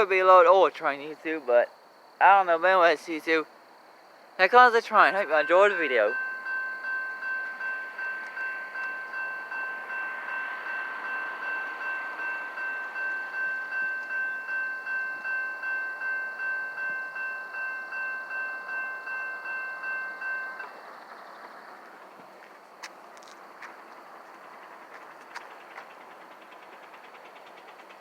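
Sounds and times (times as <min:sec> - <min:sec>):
railroad crossing bell ringing: 0:04.4 - 0:20.8.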